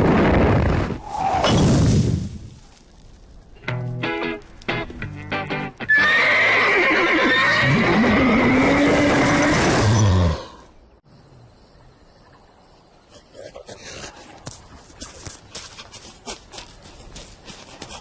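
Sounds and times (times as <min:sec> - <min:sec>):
drawn-out animal cry: 0:05.9 - 0:10.6.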